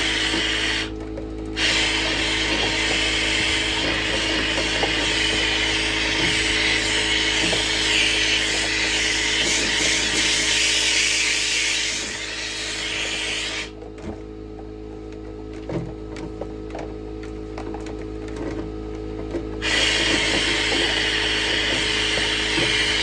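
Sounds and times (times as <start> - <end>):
power drill spinning brush: 0.0 - 1.0, 1.6 - 13.7, 19.6 - 23.0.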